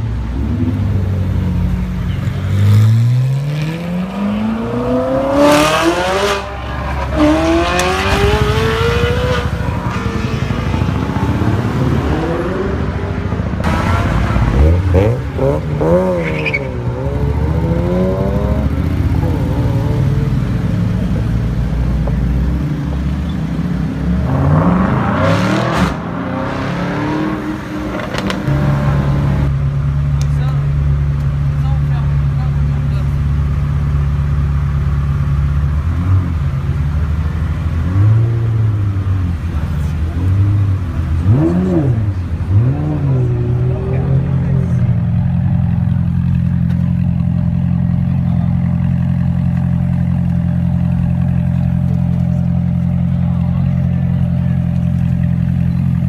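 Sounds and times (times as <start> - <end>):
sports car engines revving: 0.0 - 56.0.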